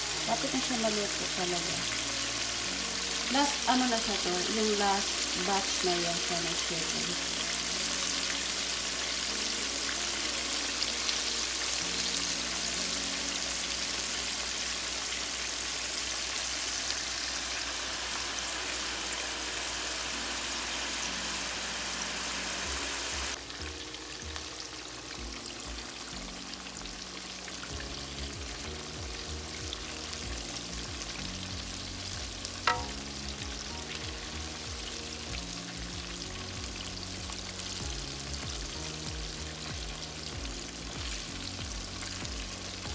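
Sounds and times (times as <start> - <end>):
chicken deep-frying in oil: 0.0 - 42.9
soft background music: 0.0 - 42.9.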